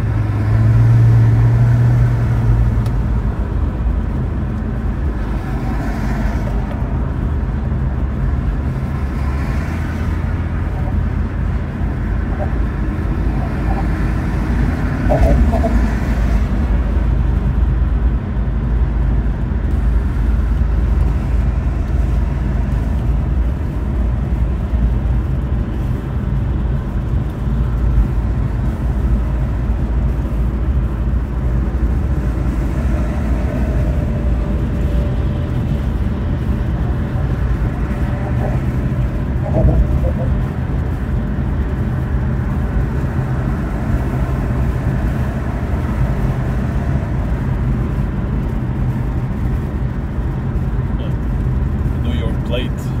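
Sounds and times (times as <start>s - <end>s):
car engine rumble: 0.0s - 53.0s
road noise: 0.0s - 53.0s.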